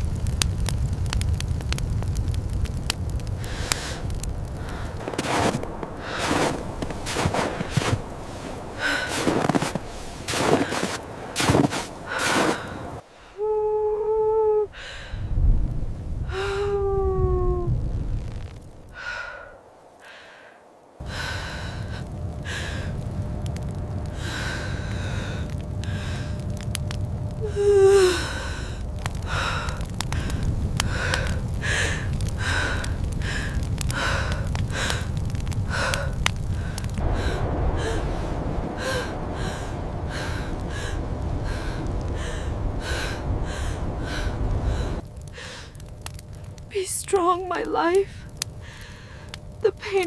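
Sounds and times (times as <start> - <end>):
low wind rumble: 0.0 - 50.0
woman crying out: 27.4 - 28.4
woman gasping and panting: 27.4 - 35.1.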